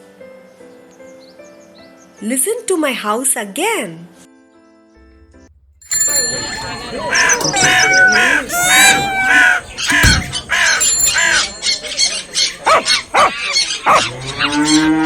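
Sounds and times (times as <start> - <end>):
birds calling: 5.9 - 15.0.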